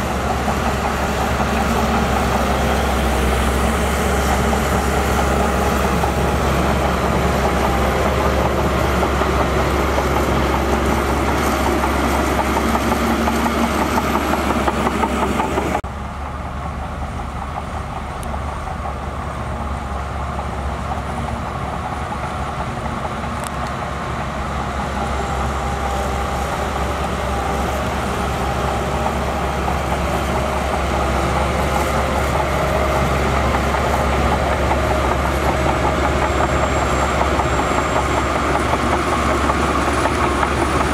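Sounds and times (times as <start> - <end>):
diesel machinery engine rumble: 0.0 - 40.9.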